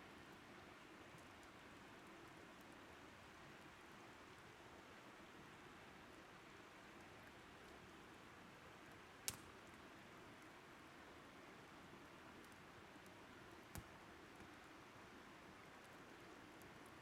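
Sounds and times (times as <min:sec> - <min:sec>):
campfire crackling: 0:01.1 - 0:02.8, 0:06.0 - 0:17.0.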